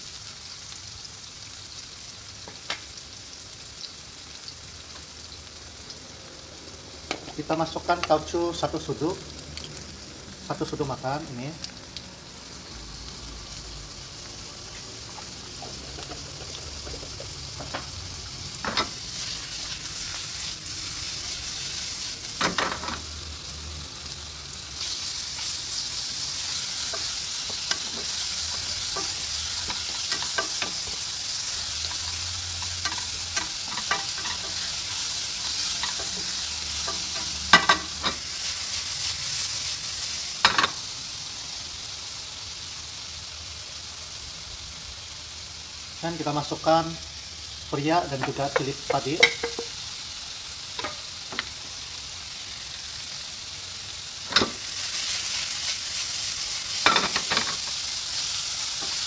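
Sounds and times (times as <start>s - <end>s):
food sizzling in oil: 0.0s - 59.0s
spatula knocking and scraping pan: 48.2s - 49.8s.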